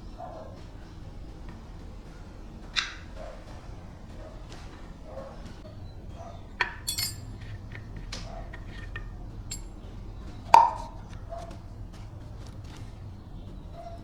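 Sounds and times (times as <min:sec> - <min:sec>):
metal tools clinking: 0:06.6 - 0:09.8.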